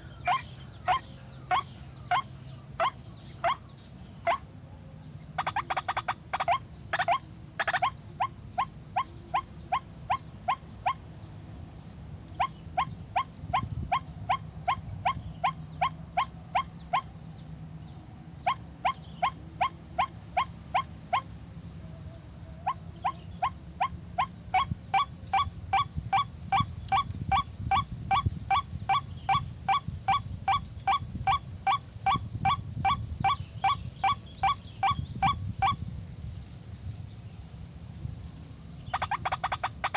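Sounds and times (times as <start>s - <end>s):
waterhen calling sharp notes: 0.0s - 3.6s, 5.4s - 11.0s, 38.9s - 39.9s.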